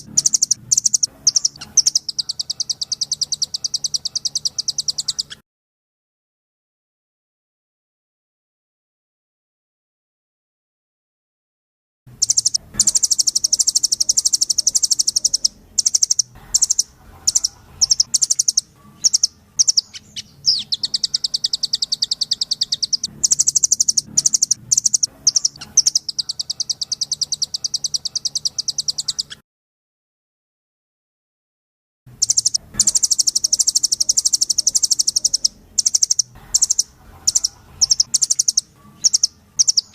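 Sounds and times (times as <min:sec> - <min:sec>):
nuthatch singing fast trills: 0:00.0 - 0:05.4, 0:12.2 - 0:29.4, 0:32.2 - 0:39.9.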